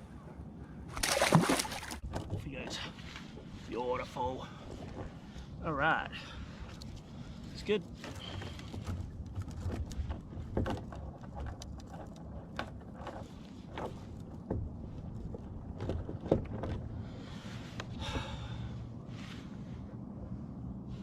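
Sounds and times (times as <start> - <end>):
knocks and clicks against hull: 1.0 - 3.6, 4.7 - 5.4, 7.9 - 18.3.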